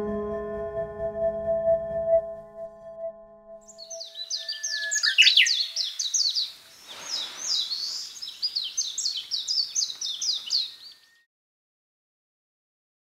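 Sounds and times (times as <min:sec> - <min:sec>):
songbirds chirping: 0:03.7 - 0:11.3.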